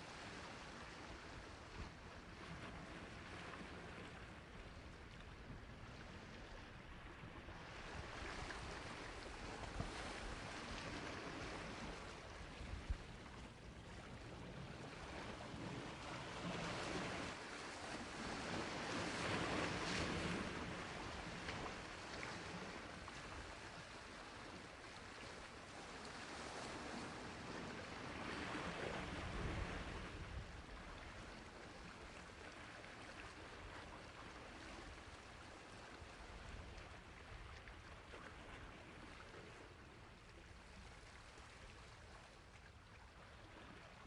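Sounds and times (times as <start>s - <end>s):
sea waves washing onto shore: 7.6s - 37.7s.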